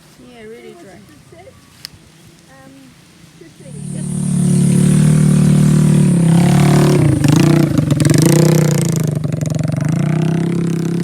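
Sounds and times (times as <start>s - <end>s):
motorcycle engine running: 3.6s - 11.0s.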